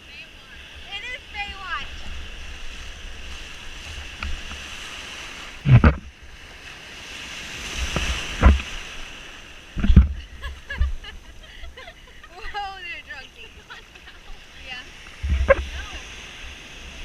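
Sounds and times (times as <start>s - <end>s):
ocean surf washing: 0.0s - 17.0s
loud water splashes: 0.8s - 10.4s
wind rumble on microphone: 5.4s - 6.5s, 7.3s - 11.4s, 14.3s - 17.0s.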